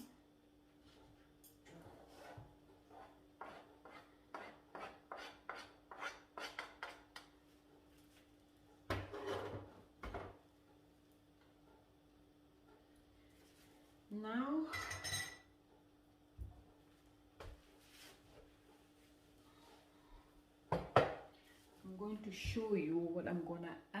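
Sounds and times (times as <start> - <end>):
knock and scrape: 8.9 - 10.4.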